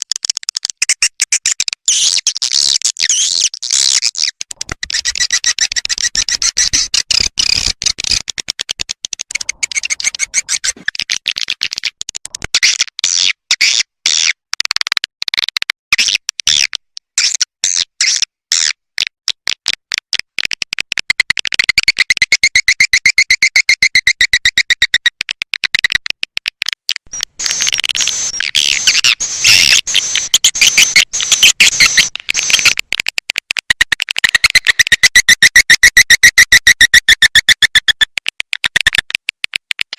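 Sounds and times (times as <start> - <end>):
swiftlet calls: 4.2 - 8.2, 9.3 - 11.0, 27.1 - 32.8.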